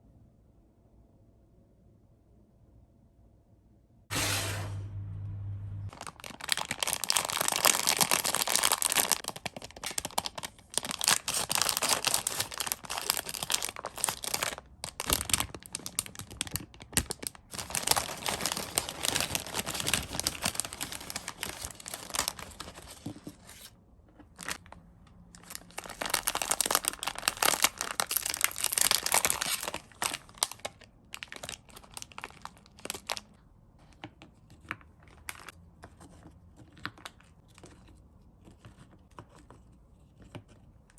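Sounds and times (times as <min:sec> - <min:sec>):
crinkly packaging tearing: 0:05.9 - 0:23.7, 0:24.3 - 0:33.3.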